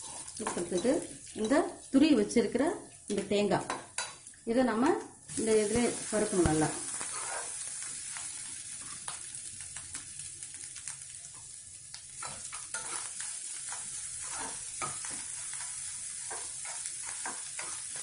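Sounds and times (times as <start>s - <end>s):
coconut sizzling in oil: 0.0s - 18.0s
spoon scraping pan: 6.9s - 7.6s, 12.2s - 18.0s.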